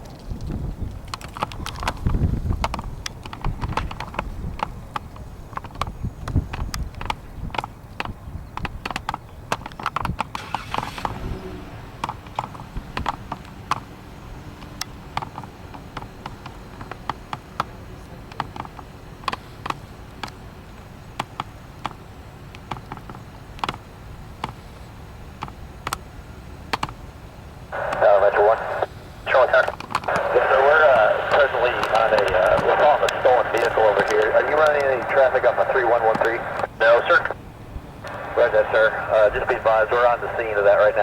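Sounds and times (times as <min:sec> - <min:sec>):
steady low rumble: 0:27.7 - 0:41.0
sharp clicks and taps: 0:29.4 - 0:37.4.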